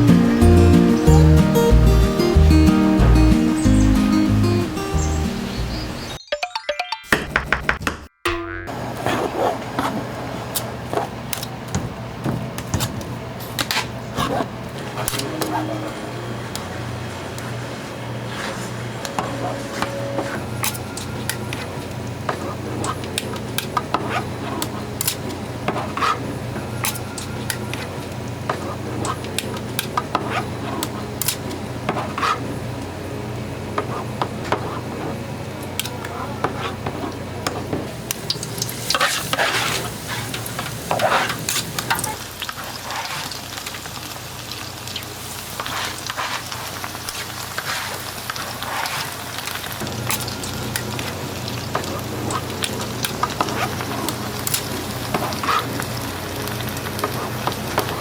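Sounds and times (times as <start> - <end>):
kitchen knocks and clatter: 10.9 - 14.5
metal utensils clinking: 18.4 - 32.5, 35.6 - 42.2, 48.6 - 51.0, 51.8 - 55.7
short tone: 19.1 - 21.0
food sizzling in hot oil: 38.0 - 58.0.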